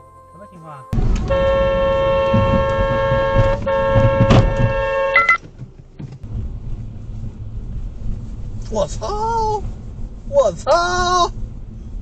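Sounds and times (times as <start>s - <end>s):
car horn blaring: 0.0s - 5.4s
road and engine noise: 0.0s - 12.0s.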